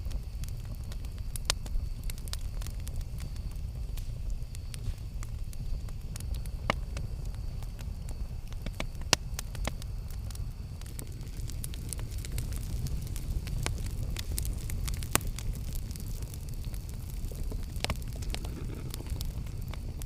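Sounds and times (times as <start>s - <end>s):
campfire rumbling: 0.0s - 20.0s
fire crackles and pops: 0.0s - 20.0s.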